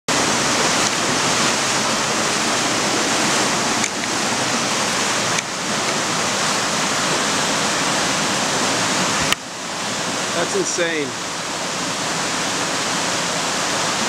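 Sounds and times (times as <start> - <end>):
floodwater rushing: 0.1 - 14.0.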